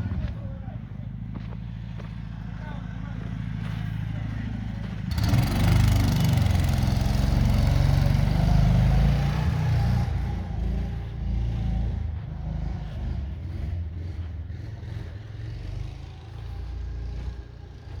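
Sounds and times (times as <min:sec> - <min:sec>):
mini-tractor engine running: 0:00.0 - 0:18.0.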